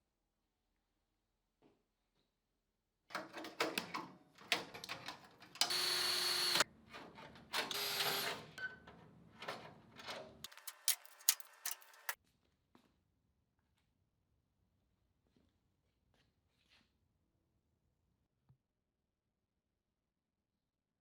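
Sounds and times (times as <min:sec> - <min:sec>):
hissing power tool: 0:05.6 - 0:06.6
metal parts clanking: 0:09.4 - 0:12.2.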